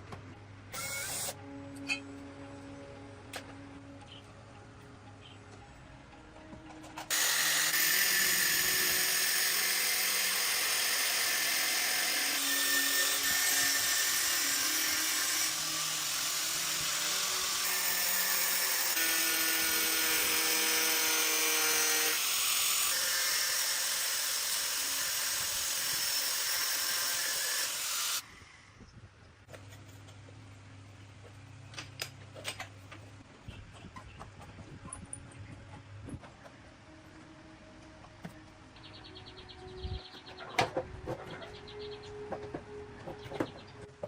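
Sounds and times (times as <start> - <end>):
power tool whining: 0.7 - 1.4, 7.0 - 28.3.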